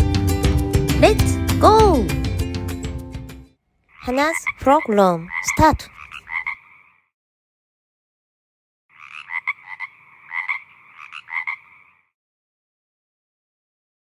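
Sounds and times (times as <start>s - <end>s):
frog croaking: 3.8s - 7.1s, 8.9s - 12.2s.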